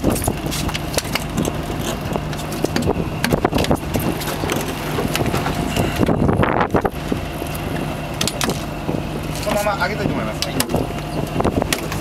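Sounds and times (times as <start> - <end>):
engine humming: 0.0 - 12.0
wind buffeting microphone: 0.0 - 12.0.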